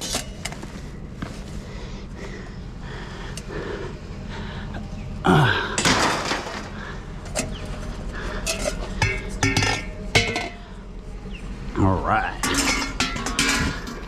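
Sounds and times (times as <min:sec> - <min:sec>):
scrap crashing and clattering: 0:05.8 - 0:07.6, 0:08.4 - 0:10.6, 0:12.4 - 0:14.0
sharp ringing clanks: 0:08.4 - 0:10.7, 0:12.4 - 0:14.0.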